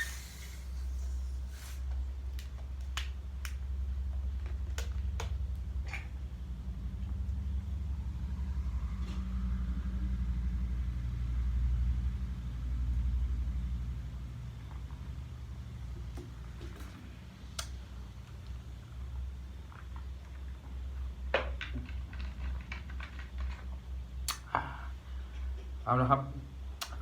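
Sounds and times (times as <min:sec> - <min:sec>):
steady low rumble: 0:02.0 - 0:21.3.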